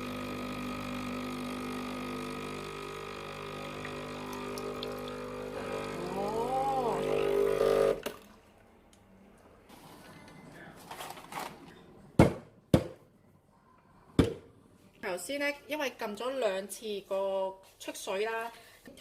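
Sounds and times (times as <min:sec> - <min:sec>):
espresso machine pump humming: 0:00.0 - 0:08.0.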